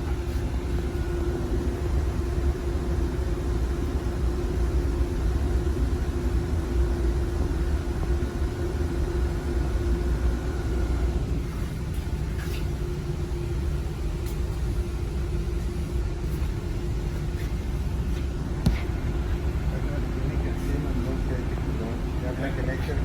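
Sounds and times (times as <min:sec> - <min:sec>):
low machine rumble with hum: 0:00.0 - 0:23.0.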